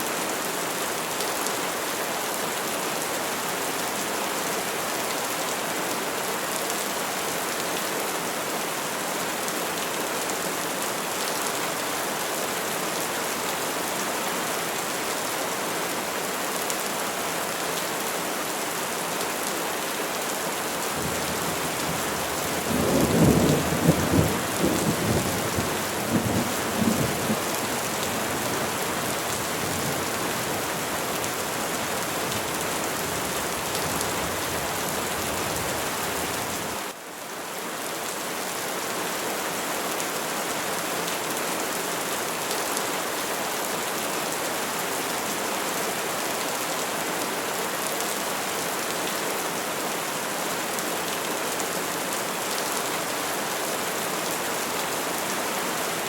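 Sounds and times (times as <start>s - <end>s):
rain falling on trees: 0.0s - 56.0s.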